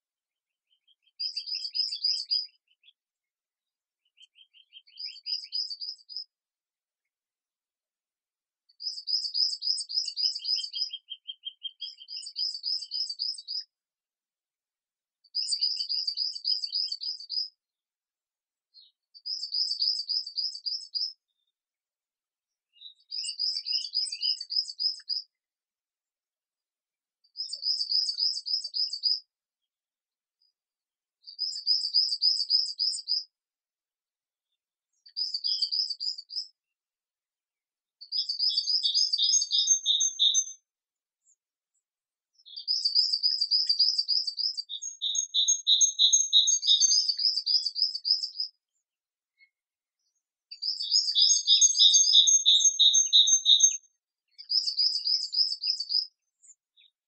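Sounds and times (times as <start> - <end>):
lower slower bird trill: 0.0 - 6.3, 8.7 - 13.7, 15.2 - 17.6, 18.7 - 21.6, 22.7 - 25.4, 27.2 - 29.3, 31.2 - 33.3, 34.4 - 36.6, 38.0 - 41.4, 42.3 - 57.0
songbird trilling: 38.1 - 40.6, 42.5 - 48.5, 50.6 - 53.8.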